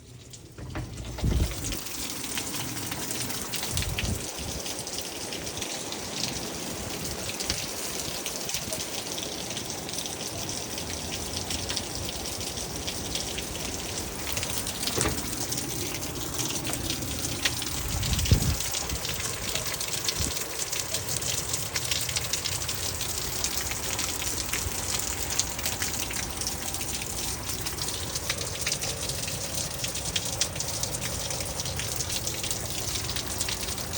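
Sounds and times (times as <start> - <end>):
heavy rain falling: 0.0 - 33.9
low thumps: 0.6 - 1.9.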